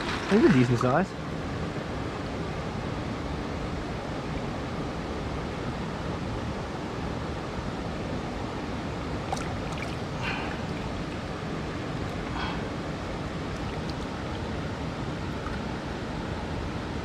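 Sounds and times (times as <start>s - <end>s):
creek water rushing: 0.0s - 1.8s, 8.1s - 17.0s.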